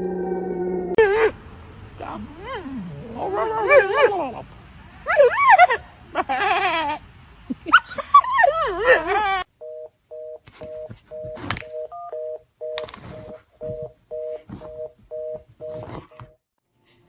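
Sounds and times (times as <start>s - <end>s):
telephone busy tone: 9.6s - 16.4s.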